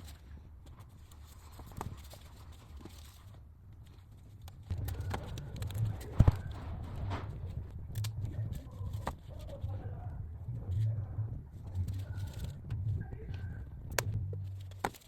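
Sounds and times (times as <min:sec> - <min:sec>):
low uneven rumble: 0:00.0 - 0:15.0
small parts clicking and knocking: 0:13.9 - 0:15.0.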